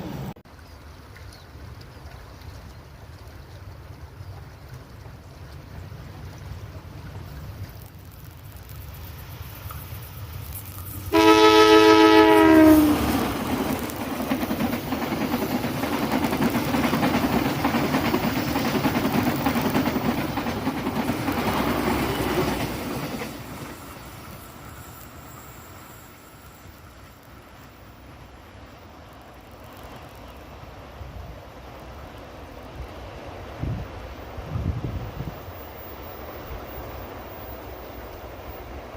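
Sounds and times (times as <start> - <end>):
train wheels clattering on rails: 7.0 - 30.6
locomotive horn blast: 11.1 - 13.1.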